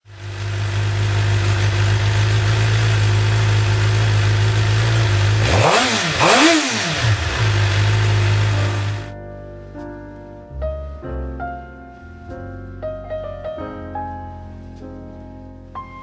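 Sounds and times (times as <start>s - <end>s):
motorcycle engine idling and revving: 0.0s - 9.1s.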